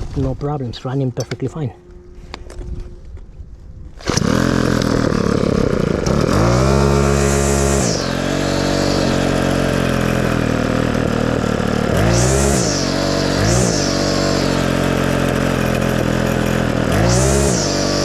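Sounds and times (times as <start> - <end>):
weed whacker engine revving: 4.0 - 18.0.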